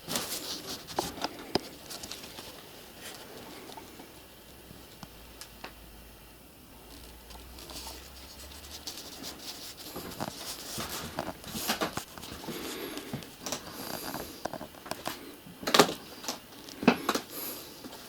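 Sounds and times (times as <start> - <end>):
small clicks scrapes and rustles: 0.1 - 3.9, 6.9 - 15.2.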